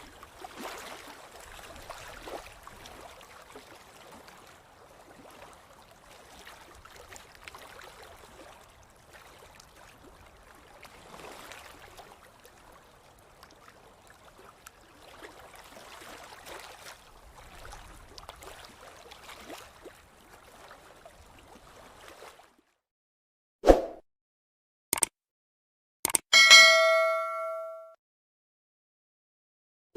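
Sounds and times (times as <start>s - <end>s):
gently moving water: 0.0s - 22.8s.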